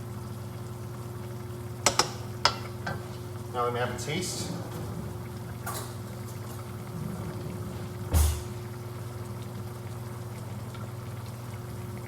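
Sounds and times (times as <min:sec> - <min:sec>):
short thump: 0:08.1 - 0:08.6.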